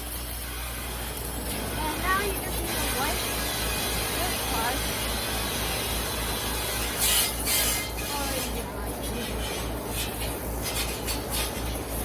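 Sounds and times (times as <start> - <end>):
steady low hum: 0.0 - 12.0
short hissing bursts: 4.9 - 8.6, 9.2 - 12.0
scrubbing a bird cage: 6.6 - 12.0.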